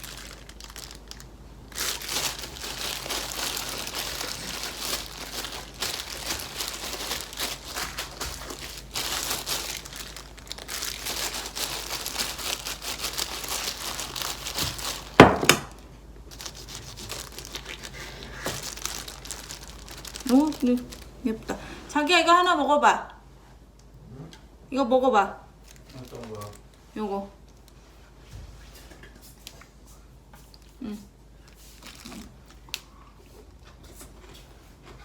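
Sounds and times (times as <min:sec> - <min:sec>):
packaging crinkling and rustling: 0:00.0 - 0:21.2, 0:25.6 - 0:26.8, 0:31.4 - 0:35.0.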